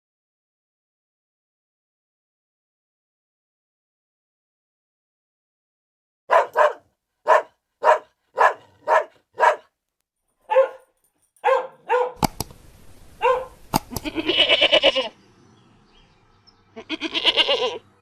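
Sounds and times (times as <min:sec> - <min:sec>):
dog barking: 0:06.3 - 0:09.7, 0:10.4 - 0:12.3, 0:13.2 - 0:13.6
sharp clicks: 0:12.2 - 0:12.6, 0:13.7 - 0:14.1.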